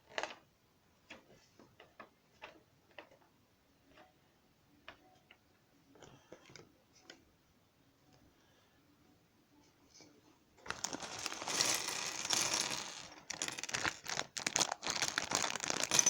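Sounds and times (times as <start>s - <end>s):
plastic pieces clicking and tapping: 10.7s - 16.0s.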